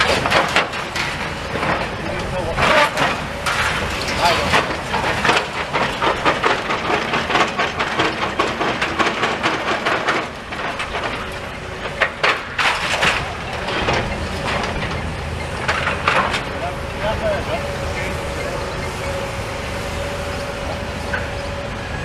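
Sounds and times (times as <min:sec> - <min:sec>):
rubble clattering and cracking: 0:00.0 - 0:16.6
demolition rumble: 0:00.0 - 0:22.0.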